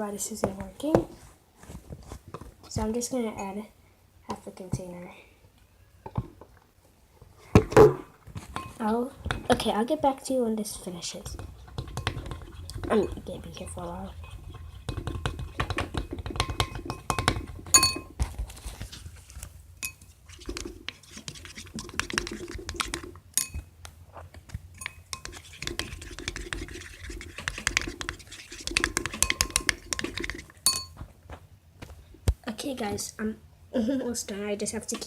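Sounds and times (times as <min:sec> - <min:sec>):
spoon stirring slime in bowl: 0:10.6 - 0:18.2, 0:18.8 - 0:31.0
spoon clinking on bowl: 0:16.5 - 0:18.1, 0:19.8 - 0:20.0, 0:23.4 - 0:23.6, 0:24.8 - 0:25.4, 0:29.1 - 0:30.1, 0:30.7 - 0:31.0.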